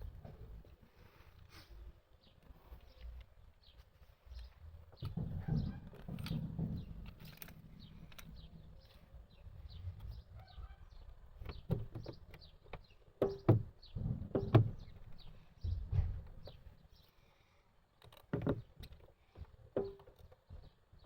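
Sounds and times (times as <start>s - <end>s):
faint bird chirping: 0.0s - 19.5s
sharp knocks and clicks: 4.9s - 9.0s, 11.4s - 16.7s, 18.0s - 20.8s.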